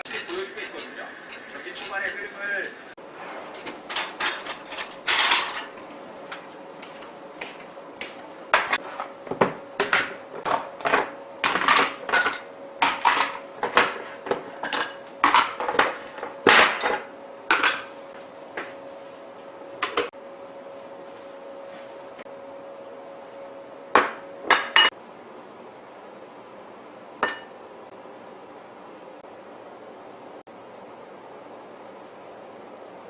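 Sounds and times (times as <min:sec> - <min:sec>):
dishes and utensils clattering: 0:00.0 - 0:02.2, 0:03.6 - 0:05.8, 0:08.6 - 0:17.9, 0:24.5 - 0:24.9, 0:27.2 - 0:27.5.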